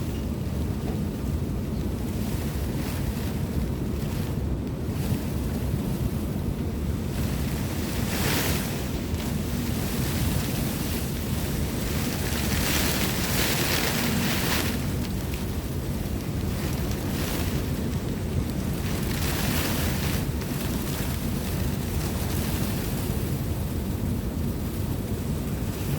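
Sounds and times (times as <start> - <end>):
wind buffeting microphone: 0.0 - 25.9
heavy rain: 6.8 - 23.2.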